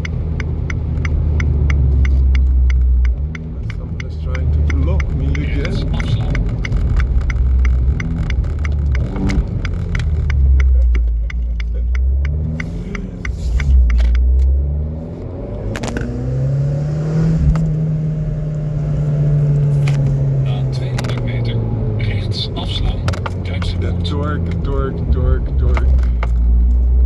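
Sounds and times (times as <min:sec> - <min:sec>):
rapid light ticks: 0:00.0 - 0:14.6, 0:22.6 - 0:26.9
car engine accelerating: 0:00.0 - 0:27.0.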